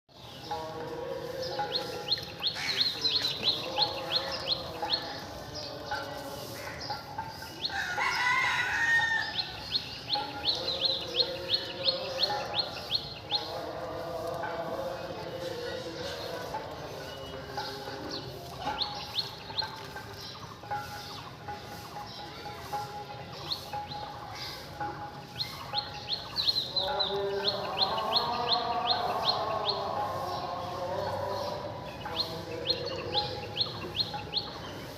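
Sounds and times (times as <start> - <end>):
bird chirping: 0.1 - 34.9
rooster crowing: 7.7 - 9.4.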